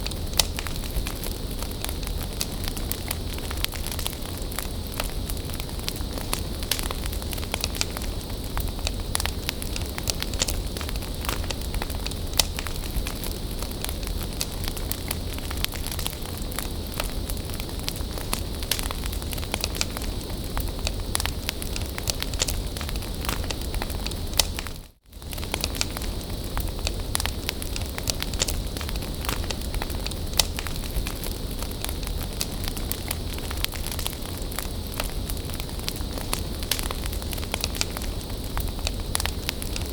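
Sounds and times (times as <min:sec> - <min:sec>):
bonfire crackling and popping: 0:00.0 - 0:39.9.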